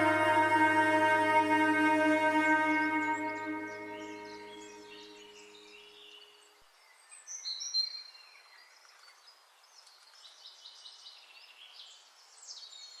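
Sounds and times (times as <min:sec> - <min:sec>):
music: 0:00.0 - 0:05.5
faint background hiss: 0:00.0 - 0:13.0.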